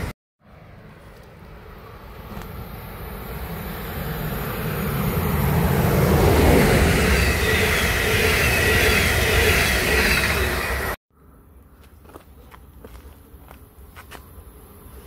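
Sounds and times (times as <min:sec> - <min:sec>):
train wheels rumbling on rails: 0:02.1 - 0:11.0.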